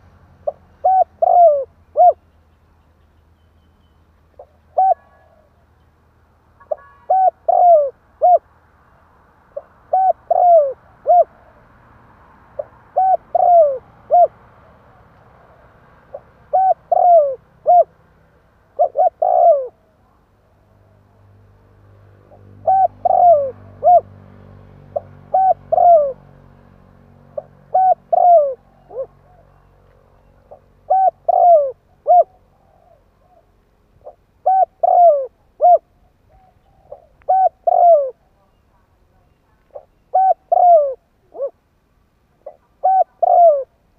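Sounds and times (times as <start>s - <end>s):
dove cooing: 0.0s - 2.2s, 4.4s - 5.6s, 6.6s - 8.5s, 9.5s - 11.7s, 12.5s - 18.0s, 18.6s - 20.2s, 22.2s - 24.2s, 24.9s - 26.3s, 27.3s - 38.6s, 39.5s - 41.6s, 42.4s - 43.8s.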